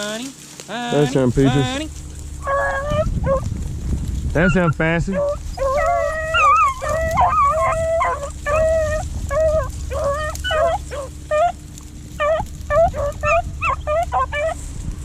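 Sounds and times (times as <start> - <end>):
beagles baying and howling: 0.9 - 15.0.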